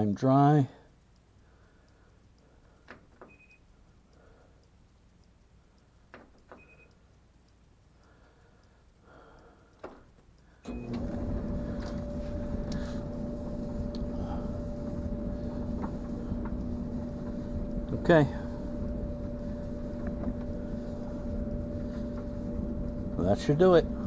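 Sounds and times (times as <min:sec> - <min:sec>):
short beeps: 0:03.3 - 0:03.7, 0:06.6 - 0:07.0
dryer motor and drum hum: 0:09.8 - 0:24.0.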